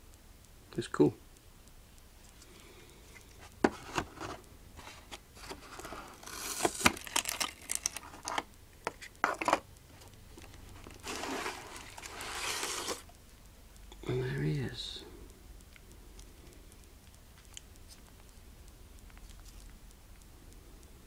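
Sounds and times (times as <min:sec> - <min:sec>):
plastic packaging crinkling: 0:04.9 - 0:09.6, 0:10.4 - 0:13.1
sharp plastic clicks and snaps: 0:15.2 - 0:21.0.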